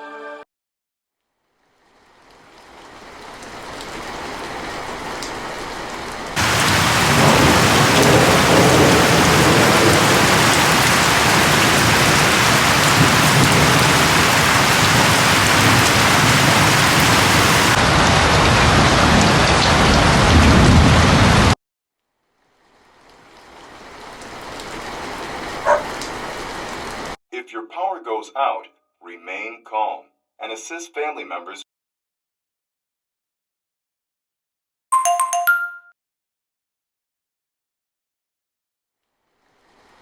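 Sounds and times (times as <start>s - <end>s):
heavy rain downpour: 1.6s - 21.6s, 22.4s - 27.2s, 39.5s - 40.0s.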